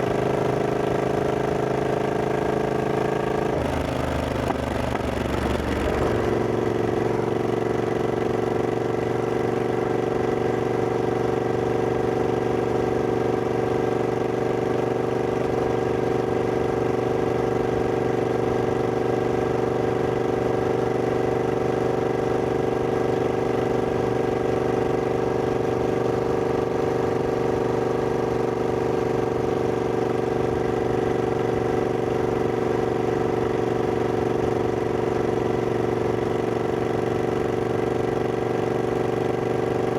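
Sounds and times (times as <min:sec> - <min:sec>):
motorcycle engine idling: 0:00.1 - 0:09.2, 0:35.0 - 0:39.9.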